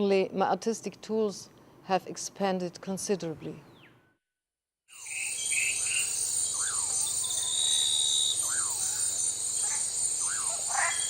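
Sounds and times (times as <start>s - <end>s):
bird swooping call: 5.0s - 11.0s
insects chorus: 5.0s - 11.0s.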